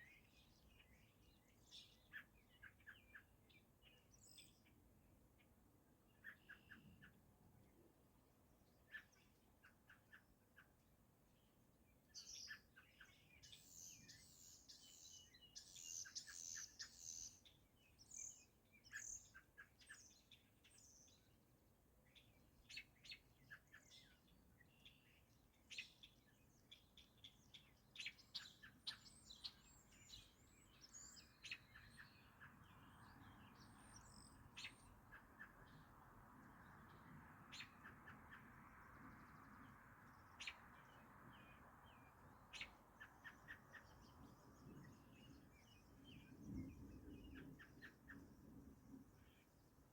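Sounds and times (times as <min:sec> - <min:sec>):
soft steady hiss: 0:10.3 - 0:49.9
birds chirping and trilling: 0:12.2 - 0:21.3, 0:22.2 - 0:35.9, 0:36.8 - 0:38.6, 0:39.6 - 0:49.7.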